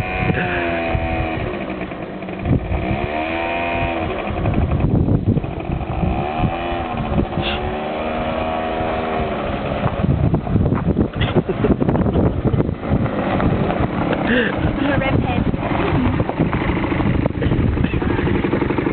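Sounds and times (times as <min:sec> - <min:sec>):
quad bike engine revving: 0:00.0 - 0:18.9.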